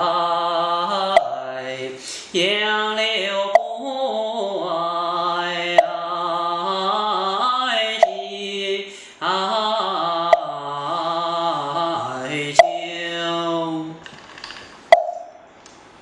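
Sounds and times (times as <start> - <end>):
man chanting slowly: 10.5 - 14.0.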